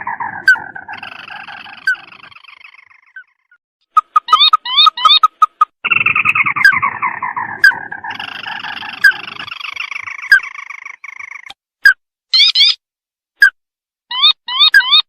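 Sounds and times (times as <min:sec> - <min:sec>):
higher bird trill: 0:00.0 - 0:11.5.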